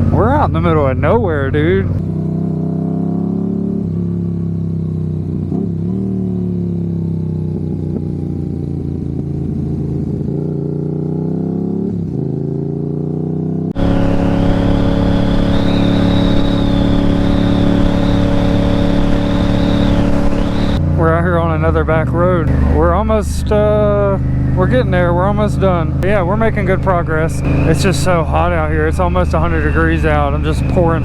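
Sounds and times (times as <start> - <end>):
motorcycle engine cruising: 0.0 - 31.0
steady high whine: 13.8 - 20.8, 26.0 - 31.0.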